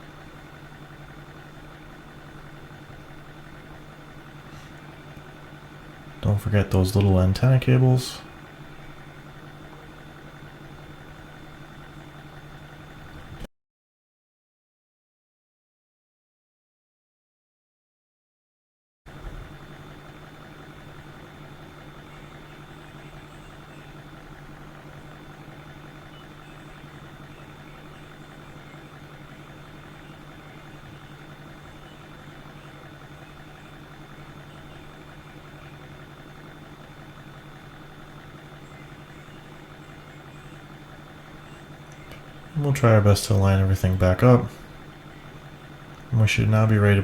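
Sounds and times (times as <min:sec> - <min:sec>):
low mechanical hum: 0:00.0 - 0:13.5, 0:19.1 - 0:47.0.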